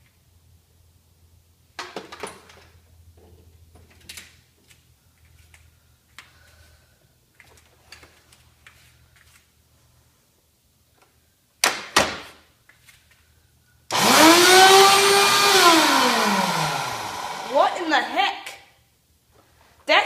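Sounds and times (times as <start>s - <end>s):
objects knocking and rattling: 1.8s - 4.2s.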